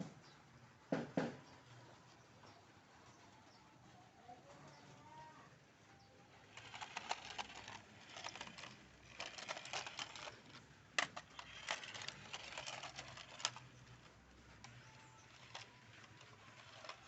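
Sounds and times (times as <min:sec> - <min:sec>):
toy car plastic rattling: 0:06.4 - 0:17.0.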